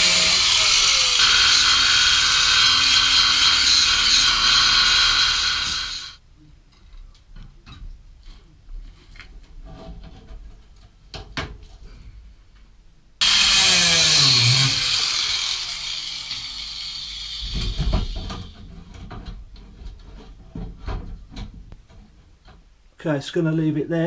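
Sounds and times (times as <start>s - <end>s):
power tool cutting: 0.0s - 6.2s, 13.2s - 18.6s.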